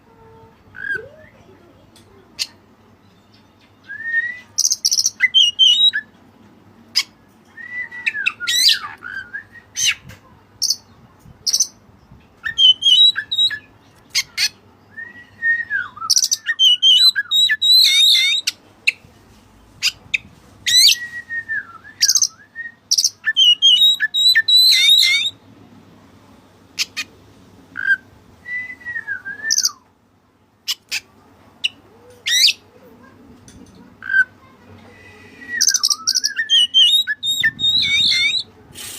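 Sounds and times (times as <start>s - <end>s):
bird singing whistles and trills: 3.6s - 6.1s, 7.5s - 10.0s, 12.4s - 13.7s, 14.9s - 18.5s, 20.7s - 25.4s, 27.8s - 29.9s, 35.0s - 38.5s.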